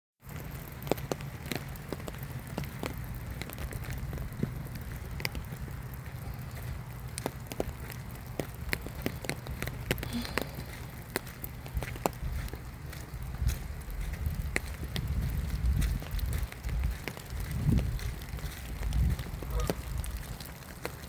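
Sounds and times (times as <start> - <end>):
raindrops ticking: 0.2 - 21.0
steady low rumble: 0.2 - 21.0.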